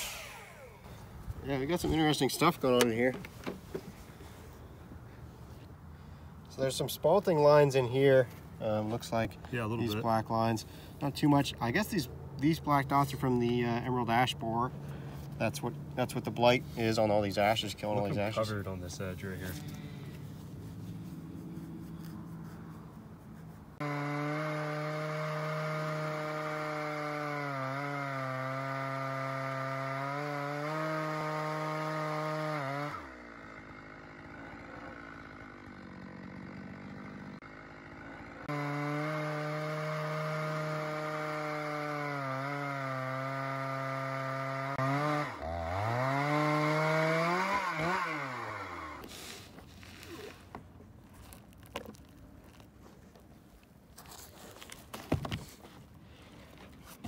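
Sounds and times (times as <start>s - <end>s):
chainsaw cutting through log: 0.0s - 3.2s, 23.8s - 52.8s.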